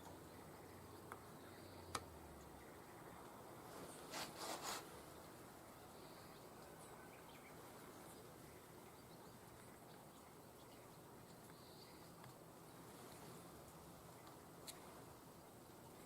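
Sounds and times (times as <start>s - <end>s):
faint light ticks: 1.0s - 2.5s, 8.9s - 14.9s.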